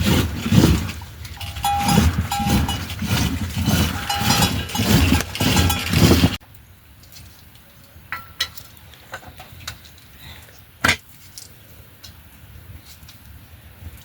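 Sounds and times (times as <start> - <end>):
livestock bells clanking: 1.4 - 3.1, 3.8 - 6.3.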